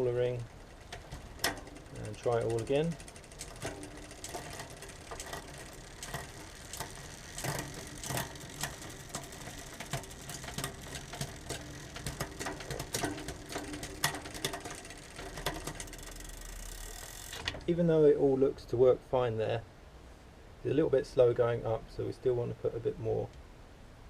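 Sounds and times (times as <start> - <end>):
bicycle chain running: 0.0 - 17.6
derailleur shifting clicks: 0.0 - 17.7.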